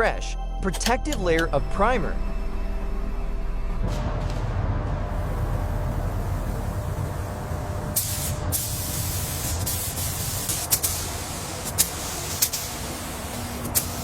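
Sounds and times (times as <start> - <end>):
low rumble: 0.0 - 9.0
paint spray gun hissing: 8.0 - 14.0.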